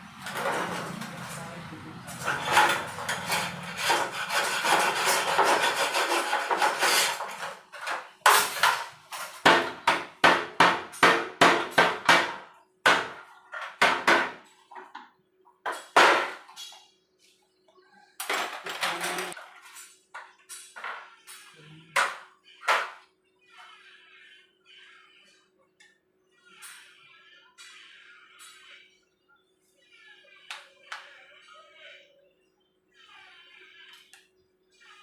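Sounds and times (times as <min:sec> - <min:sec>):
rubbing and scraping on metal parts: 0:00.1 - 0:10.2, 0:18.2 - 0:25.5, 0:26.3 - 0:28.9.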